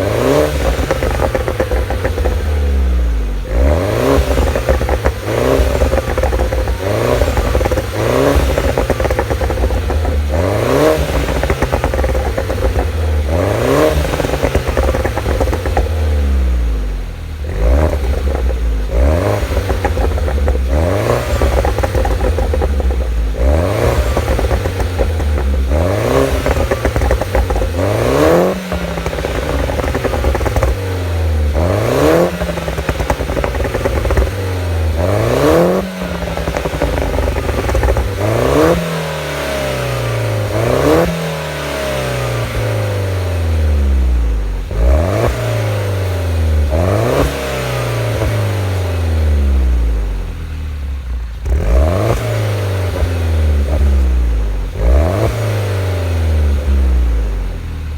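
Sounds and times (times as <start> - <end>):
car engine revving: 0.0 - 57.9.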